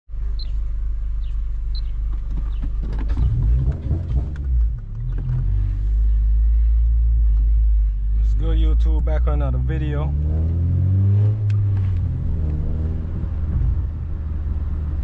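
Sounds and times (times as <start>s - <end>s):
car engine and road noise: 0.1s - 15.0s
knocks and rattles: 2.1s - 5.4s.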